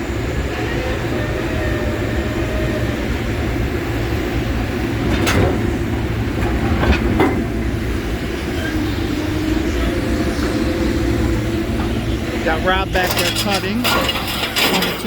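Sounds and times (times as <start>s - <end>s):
heavy machine engine rumbling: 0.0s - 15.0s
sharp metal clanks: 12.8s - 15.0s.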